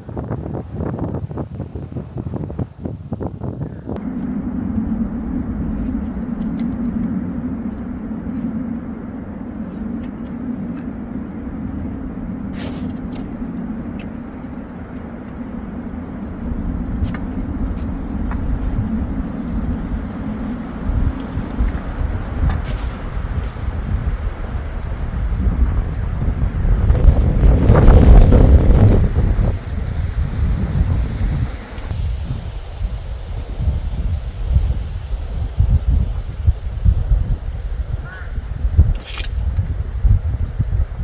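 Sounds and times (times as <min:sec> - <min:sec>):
car engine and road drone: 0:04.0 - 0:35.6.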